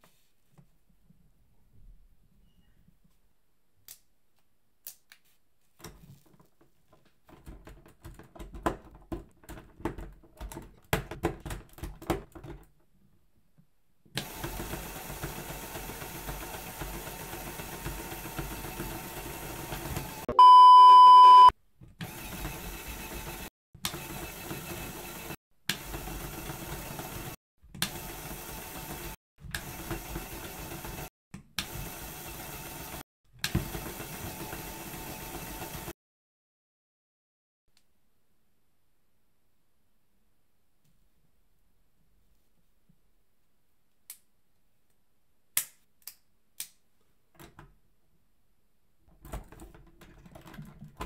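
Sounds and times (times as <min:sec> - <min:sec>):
plastic parts clicking and rattling: 0:05.8 - 0:12.9, 0:49.1 - 0:51.0
small motor running: 0:14.2 - 0:20.2, 0:22.1 - 0:31.1
loud steady beep: 0:20.3 - 0:21.5.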